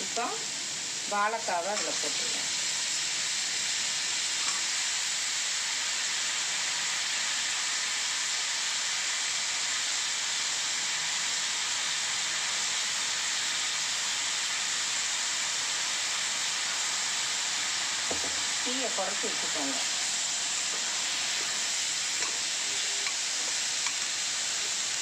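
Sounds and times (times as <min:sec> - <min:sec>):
vegetables sizzling in oil: 0:00.0 - 0:25.0.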